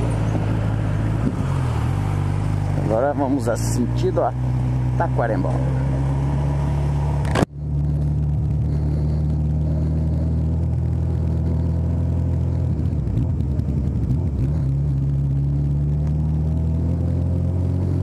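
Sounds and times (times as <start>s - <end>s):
motorcycle engine running: 0.0s - 18.0s
sharp click: 7.2s - 7.5s.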